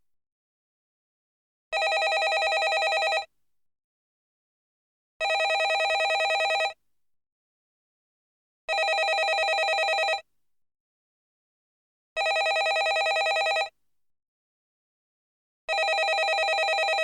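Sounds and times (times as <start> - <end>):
telephone bell ringing: 1.8 - 3.3, 5.2 - 6.8, 8.7 - 10.2, 12.2 - 13.7, 15.7 - 17.0.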